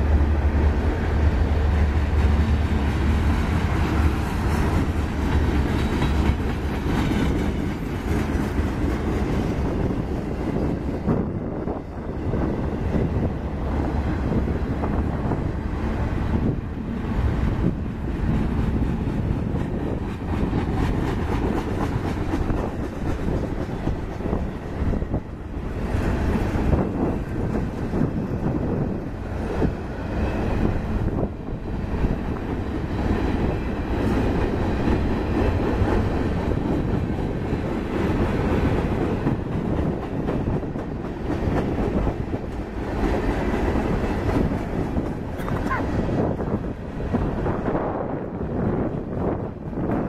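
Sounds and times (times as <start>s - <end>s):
freight train wheels rumbling: 0.0s - 50.0s
wheels clicking over rail joints: 0.9s - 11.8s.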